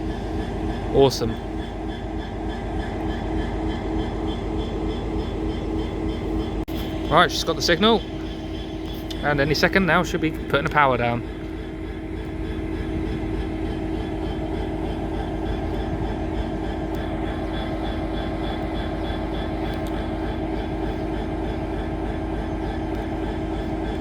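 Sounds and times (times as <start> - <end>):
diesel locomotive idling: 0.0 - 24.0.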